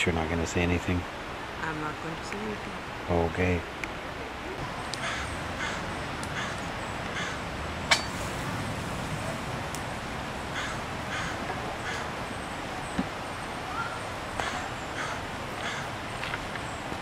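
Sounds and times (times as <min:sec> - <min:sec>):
bird calling: 0:04.1 - 0:17.0.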